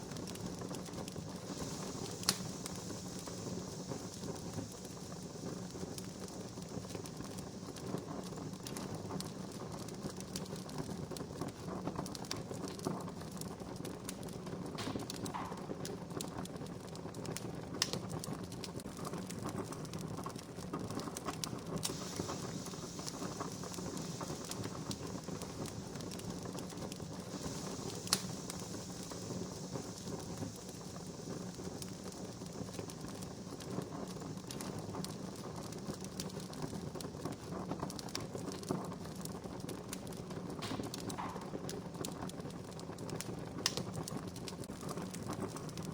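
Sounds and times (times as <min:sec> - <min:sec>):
steady high hiss: 0:00.0 - 0:13.5, 0:14.3 - 0:16.4, 0:20.8 - 0:45.9
campfire crackling and popping: 0:00.0 - 0:45.9.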